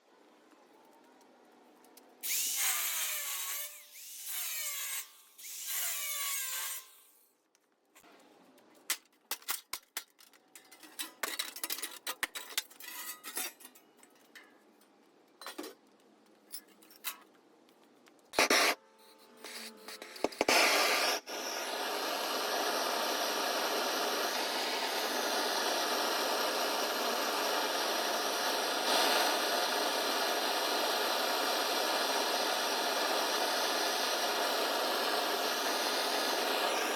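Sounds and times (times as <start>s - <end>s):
power tool on metal: 2.2s - 7.2s, 18.4s - 18.8s, 19.4s - 36.9s.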